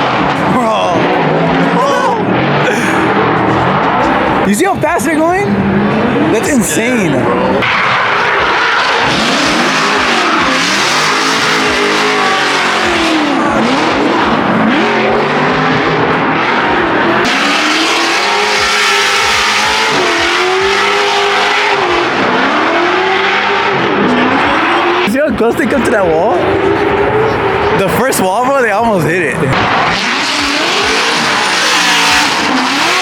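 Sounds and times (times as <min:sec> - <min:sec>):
tire squeal: 0:00.0 - 0:28.2, 0:29.5 - 0:33.0
drift car engines revving: 0:00.0 - 0:33.0.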